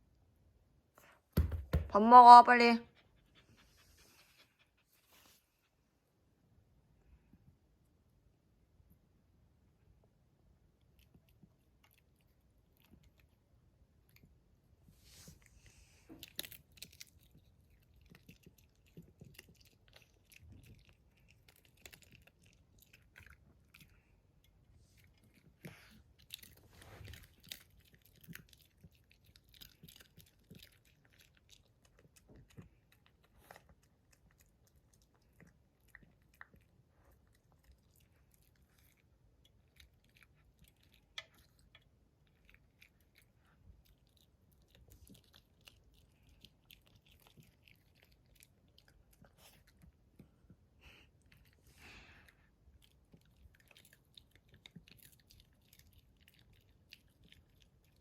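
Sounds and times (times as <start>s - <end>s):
dog crunching and chewing food: 15.6s - 50.4s, 52.7s - 58.0s.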